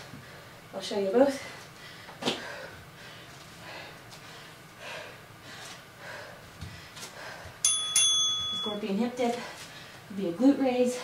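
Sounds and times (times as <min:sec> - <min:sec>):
woman breathing hard: 0:01.4 - 0:07.7.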